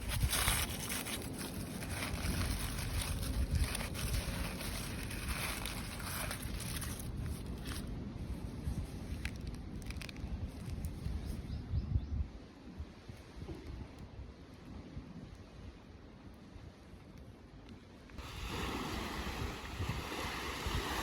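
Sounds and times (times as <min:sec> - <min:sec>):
wind buffeting microphone: 0:06.5 - 0:14.4, 0:18.2 - 0:21.0.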